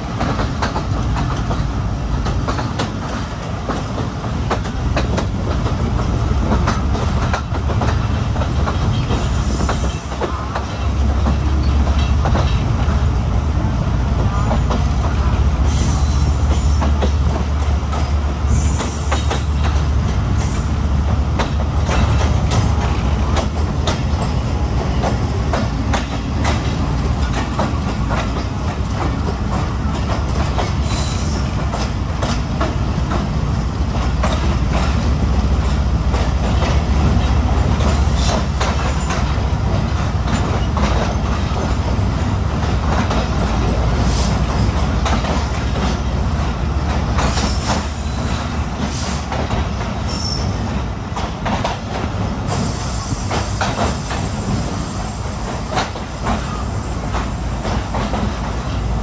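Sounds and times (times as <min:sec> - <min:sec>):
train rumbling on rails: 0:00.0 - 0:59.0
train wheel squeals: 0:08.7 - 0:12.6, 0:14.3 - 0:17.2, 0:18.0 - 0:21.0, 0:30.6 - 0:31.9, 0:47.2 - 0:49.3, 0:50.0 - 0:50.8, 0:52.5 - 0:58.4.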